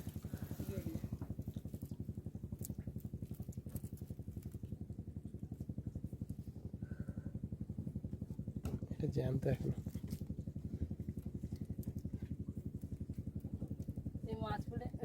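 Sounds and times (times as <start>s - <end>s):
boat diesel engine idling: 14.2s - 15.0s.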